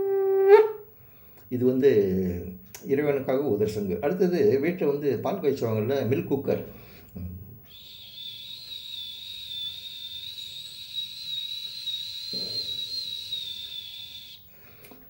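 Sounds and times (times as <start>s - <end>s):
man whistling with mouth: 7.6s - 14.9s.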